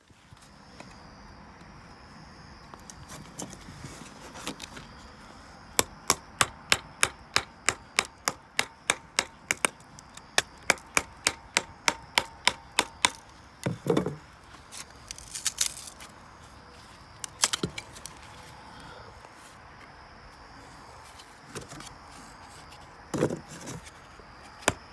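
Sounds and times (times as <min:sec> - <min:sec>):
chopping wood: 0:05.8 - 0:14.2.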